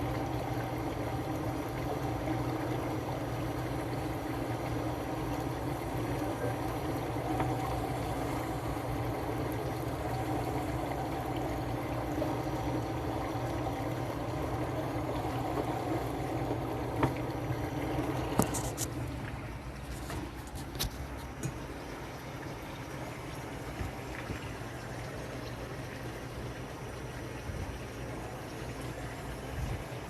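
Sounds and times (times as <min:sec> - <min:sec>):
speedboat engine running: 0:00.0 - 0:21.7
water splashing and trickling: 0:00.0 - 0:30.0.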